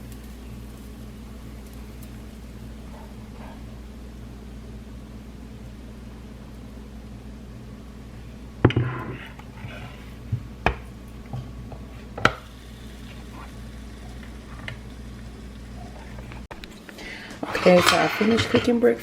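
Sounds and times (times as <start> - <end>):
steady low hum: 0.0 - 19.0
dishes and utensils clattering: 17.4 - 18.8.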